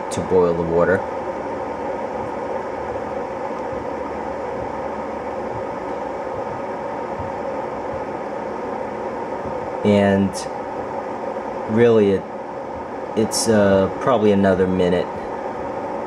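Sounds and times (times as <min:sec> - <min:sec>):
electric kettle heating water: 0:00.0 - 0:16.0.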